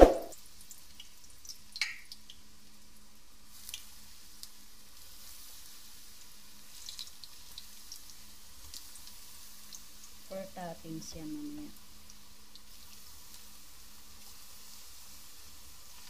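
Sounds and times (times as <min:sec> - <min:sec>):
slices sizzling in oil: 0:00.0 - 0:16.0
oil popping and crackling: 0:00.3 - 0:02.9, 0:06.6 - 0:10.3.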